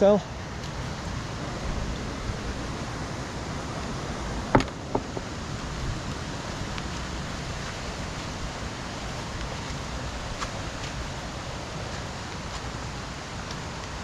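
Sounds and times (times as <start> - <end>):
river rushing: 0.0 - 14.0
sharp knocks: 4.5 - 5.3.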